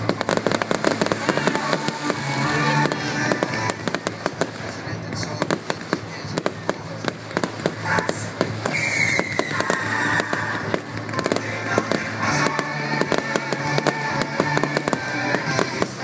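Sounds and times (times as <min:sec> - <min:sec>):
music with sustained notes: 0:00.0 - 0:04.7, 0:09.8 - 0:16.0
fireworks bangs and crackles: 0:00.0 - 0:16.0.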